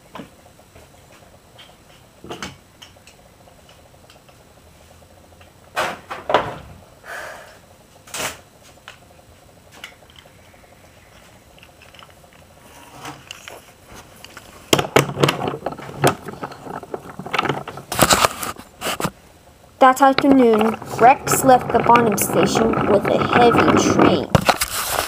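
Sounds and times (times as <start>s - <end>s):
sharp clicks and knocks: 14.2s - 19.1s, 19.8s - 24.7s.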